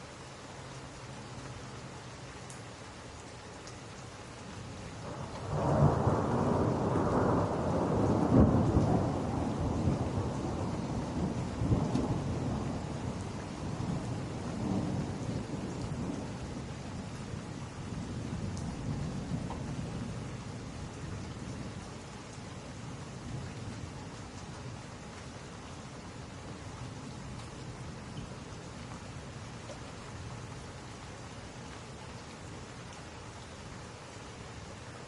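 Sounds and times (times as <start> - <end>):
steady rain: 0.0 - 35.0
thunder rolling: 5.1 - 12.7.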